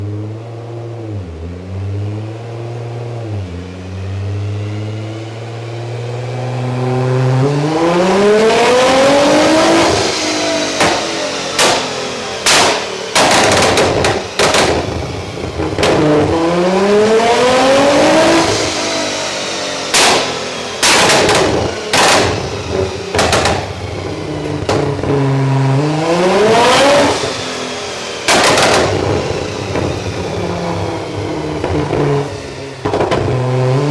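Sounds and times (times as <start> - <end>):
car engine revving: 0.0 - 33.9
exhaust bangs: 7.3 - 33.9.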